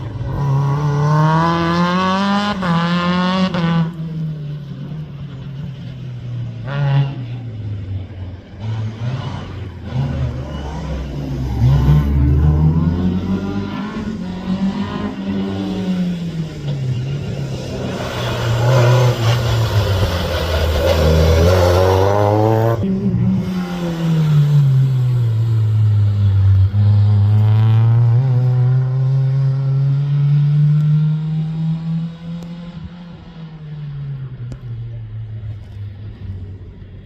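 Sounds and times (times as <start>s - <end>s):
rally car engine revving: 0.0s - 37.0s.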